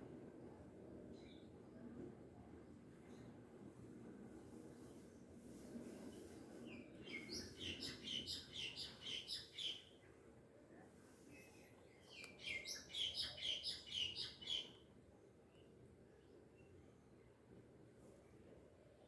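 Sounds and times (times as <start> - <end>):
songbird chirping: 7.1 - 10.0, 11.9 - 14.8.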